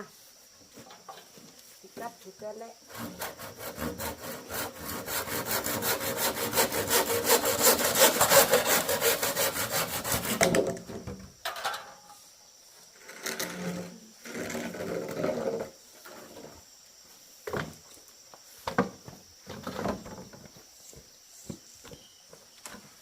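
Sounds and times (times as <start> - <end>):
handsaw sawing bamboo: 2.9 - 10.6.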